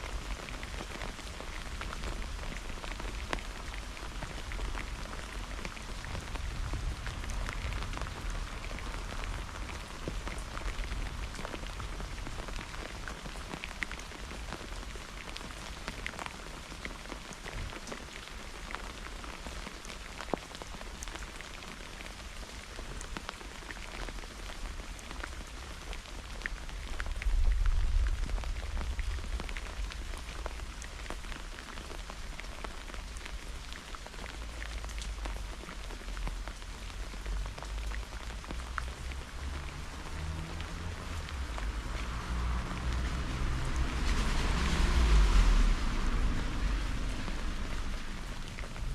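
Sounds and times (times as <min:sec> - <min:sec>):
rain falling: 0:00.0 - 0:48.9.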